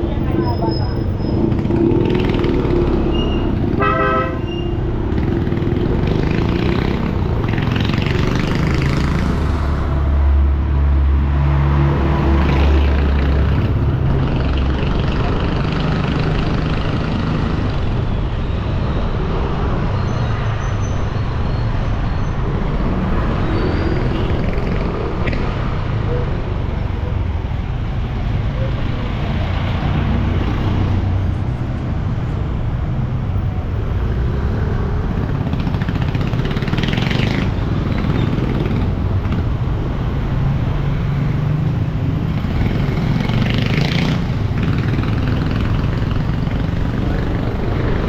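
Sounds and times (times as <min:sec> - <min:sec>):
motorbike engine and road noise: 0:00.0 - 0:48.0
vehicle horn honking: 0:03.8 - 0:04.8.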